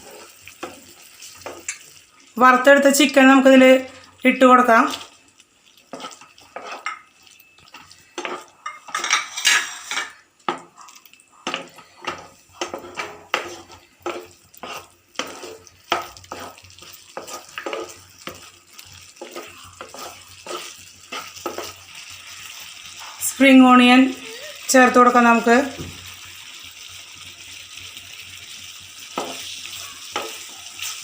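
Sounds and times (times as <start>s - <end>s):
utensil scraping in a pan: 0.0s - 2.0s, 5.8s - 10.7s, 11.4s - 23.4s
faint sizzle: 0.0s - 31.0s.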